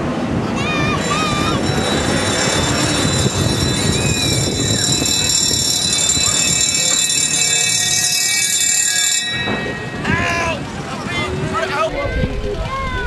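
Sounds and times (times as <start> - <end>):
high-pitched electronic alarm tone: 0.9 - 10.6
murmur of voices: 9.8 - 13.0.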